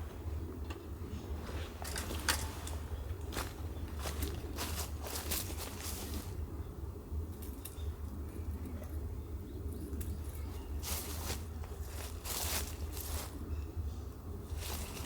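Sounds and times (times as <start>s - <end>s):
rustling crunches: 3.3s - 6.4s, 10.8s - 13.5s, 14.5s - 15.0s.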